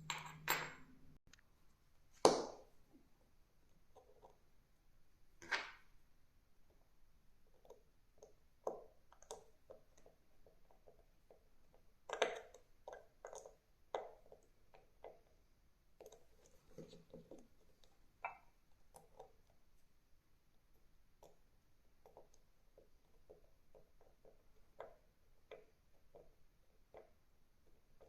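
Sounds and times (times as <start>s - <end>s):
small clicks and taps on a watch: 7.5s - 19.9s, 20.8s - 28.0s.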